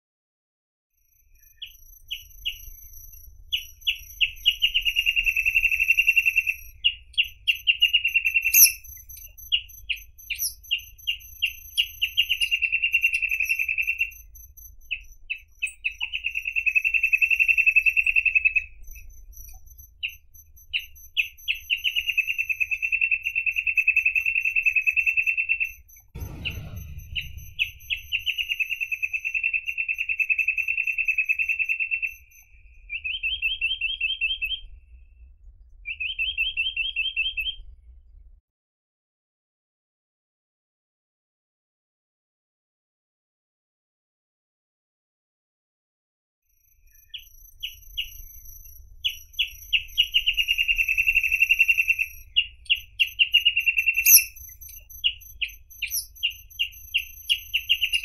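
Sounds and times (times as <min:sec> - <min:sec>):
bird singing trills: 0:01.1 - 0:34.8, 0:35.9 - 0:37.6, 0:46.8 - 0:58.0
faint low rumble: 0:25.8 - 0:30.0, 0:37.5 - 0:38.4.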